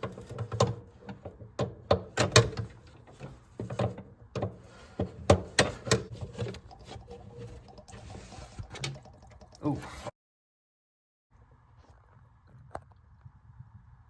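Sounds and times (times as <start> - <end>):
tools knocking and clunking: 0.0 - 6.5.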